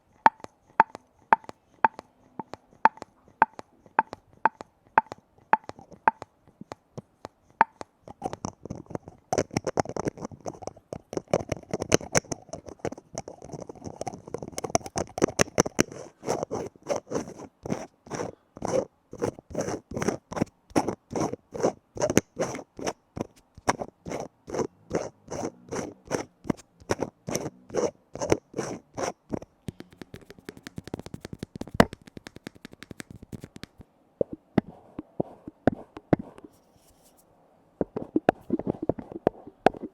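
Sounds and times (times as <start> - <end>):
lids tapped by hand: 0.2 - 6.3, 7.6 - 8.6, 26.1 - 33.8, 34.6 - 36.5.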